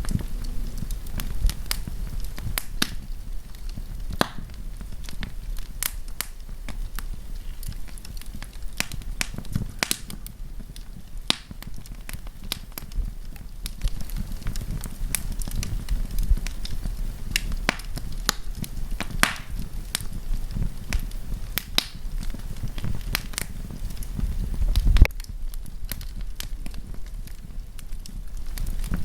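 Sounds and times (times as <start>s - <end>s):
campfire crackling and popping: 0.0s - 29.0s
low rumble of flames: 0.0s - 29.0s.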